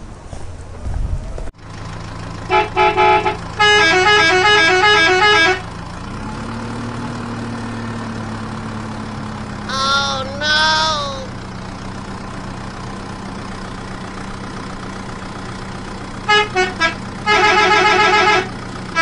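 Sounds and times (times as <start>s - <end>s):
pitched toy sound: 9.7s - 11.3s.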